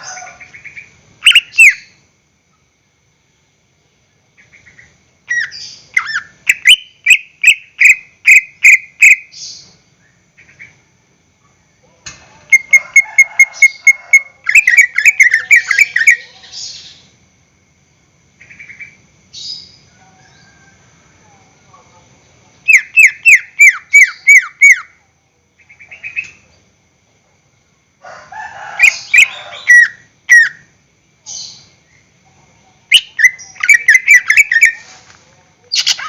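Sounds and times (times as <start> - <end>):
bird whistling and trilling: 1.3 - 1.9.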